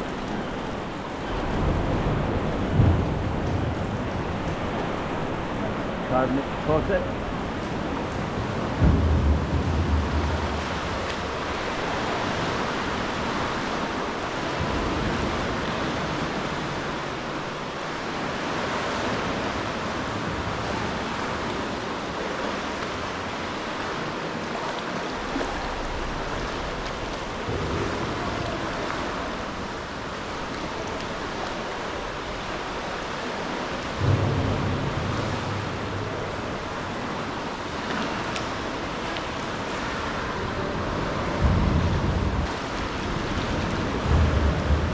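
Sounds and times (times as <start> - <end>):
water lapping against rocks: 0.0 - 44.9
wind buffeting microphone: 7.1 - 17.3, 39.9 - 44.9.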